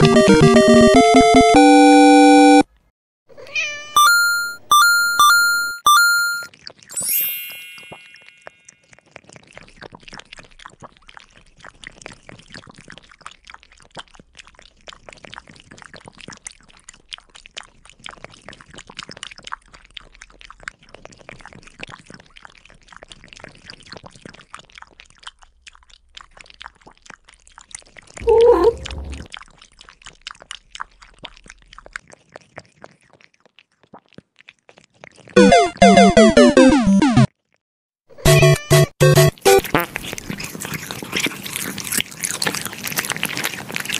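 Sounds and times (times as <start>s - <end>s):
music: 0.0s - 1.7s, 38.3s - 39.6s
kittens licking with wet clicks: 6.5s - 6.9s, 8.5s - 28.6s, 29.2s - 35.5s, 39.2s - 43.9s.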